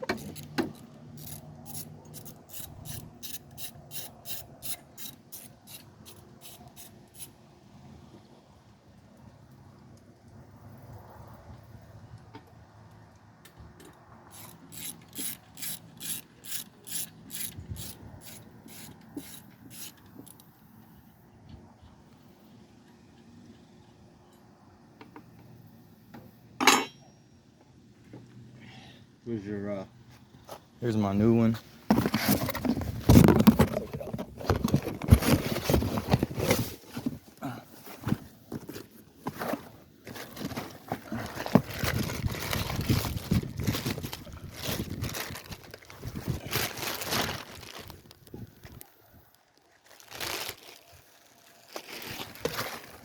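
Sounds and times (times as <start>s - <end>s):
ratchet wrench clicking: 0.2s - 7.3s, 14.3s - 20.4s
knocks and clatter from handling: 31.9s - 37.2s.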